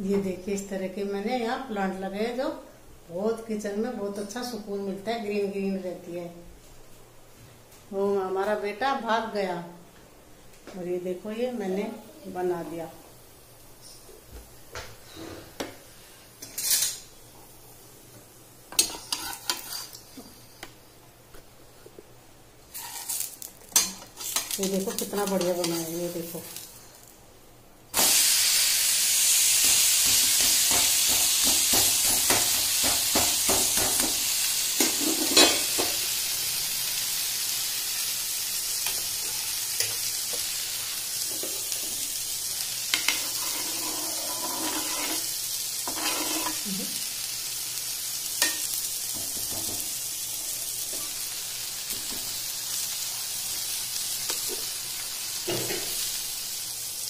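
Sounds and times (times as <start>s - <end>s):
batter sizzling on a hot pan: 18.6s - 20.6s, 22.7s - 27.2s, 27.9s - 57.0s.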